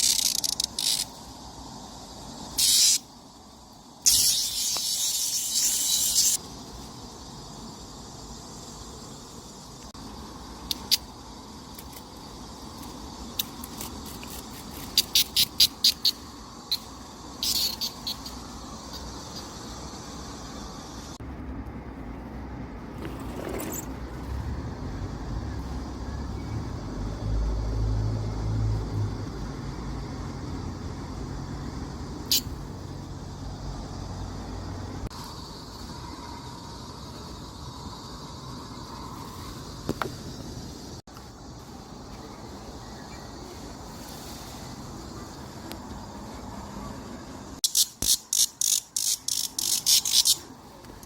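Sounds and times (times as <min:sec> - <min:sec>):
cicadas buzzing: 0:00.0 - 0:51.0
low engine-like rumble: 0:18.4 - 0:43.9.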